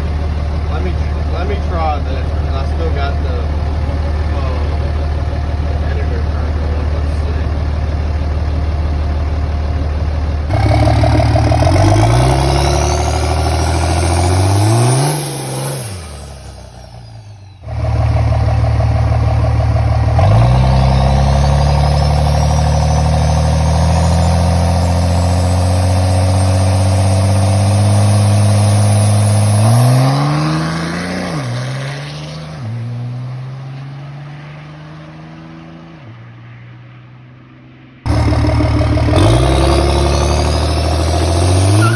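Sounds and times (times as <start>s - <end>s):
diesel truck accelerating: 0.0s - 36.9s, 37.7s - 41.9s
turbo whistle: 41.5s - 41.9s.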